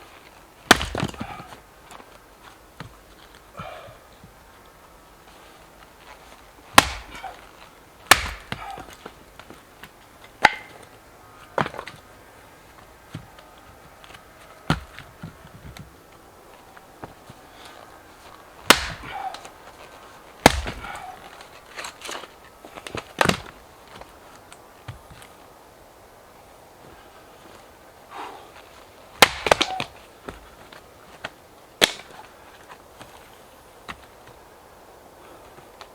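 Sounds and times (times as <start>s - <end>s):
axe chopping firewood: 0.6s - 2.2s, 6.7s - 12.0s, 14.0s - 15.9s, 17.0s - 24.1s, 29.1s - 33.2s
smaller wood knocks: 0.7s - 1.5s, 6.8s - 7.3s, 8.1s - 9.6s, 14.7s - 15.9s, 18.6s - 19.2s, 20.4s - 21.1s.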